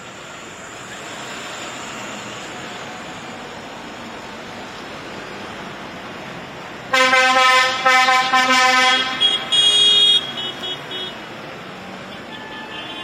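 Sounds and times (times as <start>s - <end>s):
low-pitched tractor horn: 6.9s - 10.7s
high-pitched horn toots: 6.9s - 11.2s.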